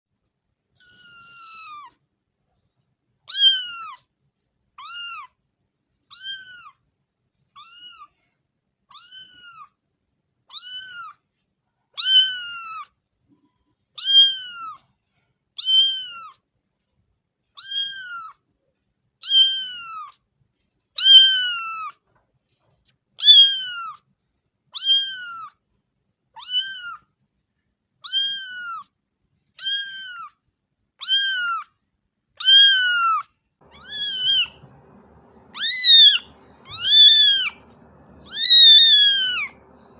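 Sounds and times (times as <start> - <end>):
cat meowing: 0.8 - 2.0, 3.3 - 4.0, 4.8 - 5.3, 6.1 - 6.8, 7.6 - 8.2, 8.9 - 9.7, 10.5 - 11.2, 12.0 - 12.9, 14.0 - 14.8, 15.6 - 16.4, 17.6 - 18.4, 19.2 - 20.2, 21.0 - 22.0, 23.2 - 24.0, 24.8 - 25.6, 26.4 - 27.0, 28.0 - 28.9, 29.6 - 30.4, 31.0 - 31.7, 32.4 - 39.9.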